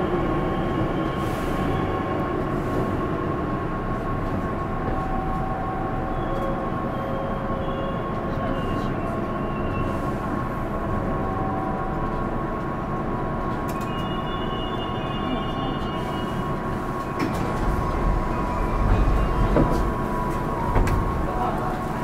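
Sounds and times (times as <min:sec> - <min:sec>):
train wheels rumbling: 0:00.0 - 0:22.0
brief wheel squeals: 0:13.8 - 0:20.7
deep rumble with knocks: 0:17.1 - 0:21.4.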